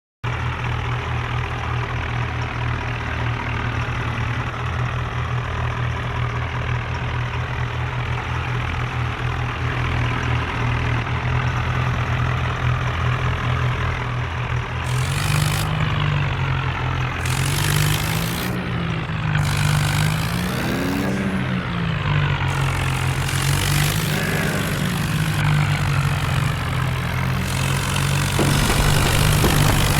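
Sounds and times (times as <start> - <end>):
diesel tractor engines under load: 16.8 - 29.9.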